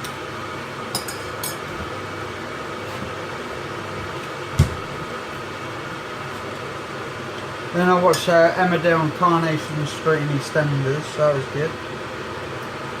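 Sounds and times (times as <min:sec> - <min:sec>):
appliance humming: 0:00.0 - 0:13.0
dull thump: 0:04.6 - 0:05.0.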